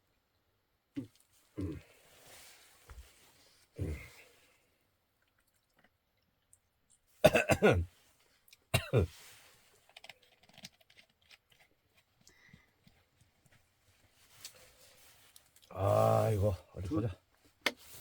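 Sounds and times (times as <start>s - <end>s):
man making vocal sounds: 1.0s - 1.8s, 3.8s - 4.2s.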